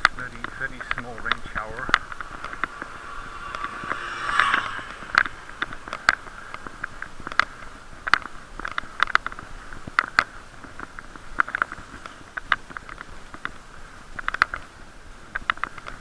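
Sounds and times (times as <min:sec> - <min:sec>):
hollow ringing tone: 0:01.0 - 0:07.2.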